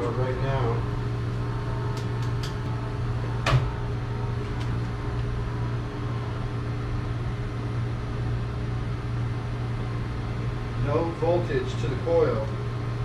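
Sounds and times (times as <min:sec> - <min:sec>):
heat pump humming: 0:00.0 - 0:13.0.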